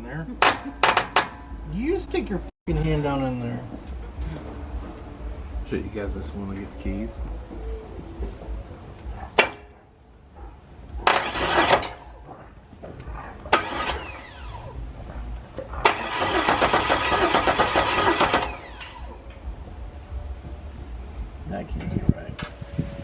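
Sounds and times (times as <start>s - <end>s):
starter cranking engine: 11.0s - 12.1s, 13.5s - 14.7s, 15.7s - 19.1s.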